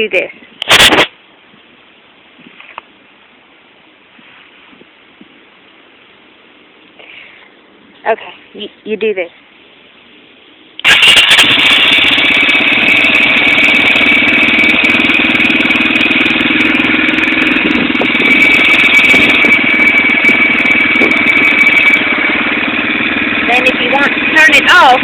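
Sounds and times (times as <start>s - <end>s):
dirt bike engine idling: 10.8s - 25.0s.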